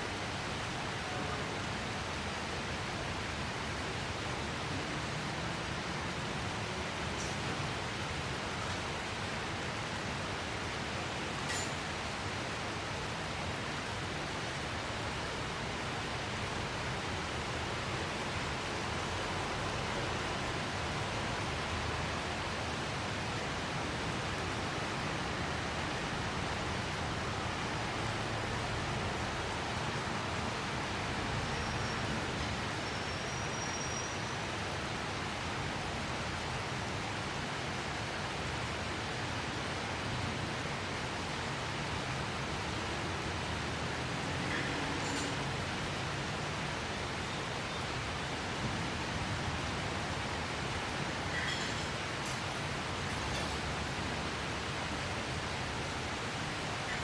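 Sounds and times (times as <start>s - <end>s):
steady rain hiss: 0.0s - 57.0s
faint high whistle: 32.8s - 34.4s.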